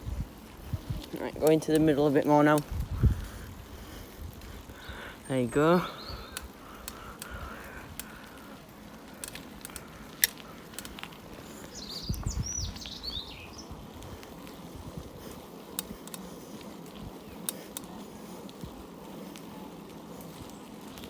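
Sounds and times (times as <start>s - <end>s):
wind noise: 0.0s - 16.2s
bicycle rolling: 0.0s - 21.0s
sharp ticks and clicks: 0.9s - 13.0s, 14.0s - 21.0s
bird chirping: 5.3s - 6.5s, 11.4s - 13.8s.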